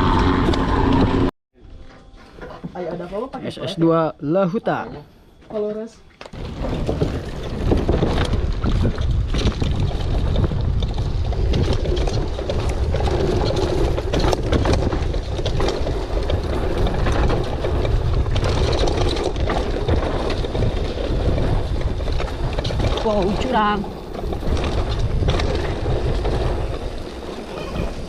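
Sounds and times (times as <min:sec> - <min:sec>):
bike tyres on dirt: 0:06.2 - 0:28.0
bike knocks and rattles: 0:06.3 - 0:28.0
wind buffeting microphone: 0:06.4 - 0:28.0.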